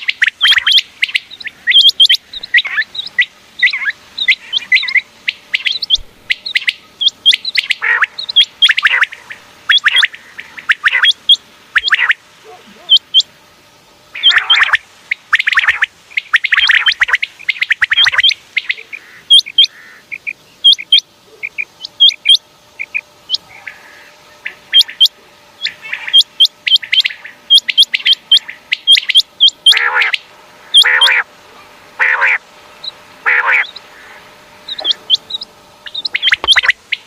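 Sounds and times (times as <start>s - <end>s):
quail whistled calls: 0.0s - 12.2s, 12.8s - 13.3s, 14.1s - 31.3s, 32.0s - 37.0s
harsh rattling trills: 19.2s - 37.0s.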